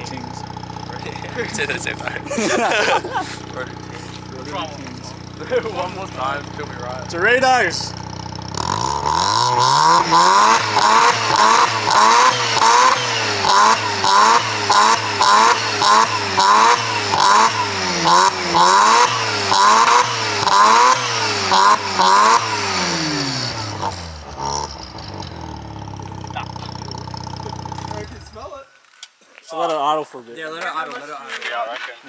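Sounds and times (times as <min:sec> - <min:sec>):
exhaust popping: 0:00.0 - 0:28.6
rotary engine revving: 0:07.9 - 0:28.4.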